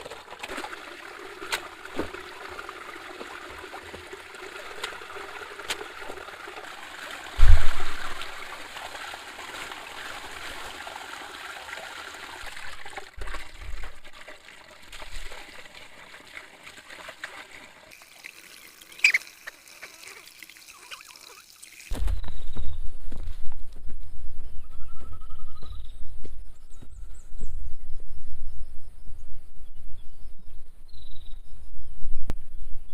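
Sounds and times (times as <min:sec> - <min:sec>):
water trickling: 0:00.0 - 0:22.0
loud low thump: 0:07.4 - 0:08.0.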